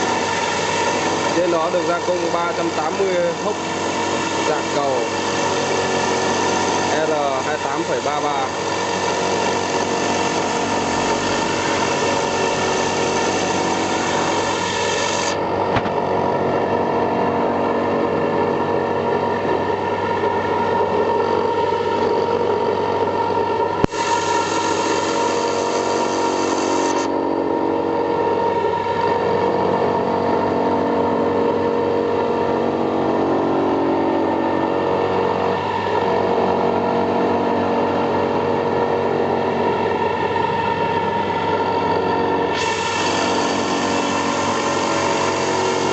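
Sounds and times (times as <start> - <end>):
milling machine running: 0.0 - 45.9.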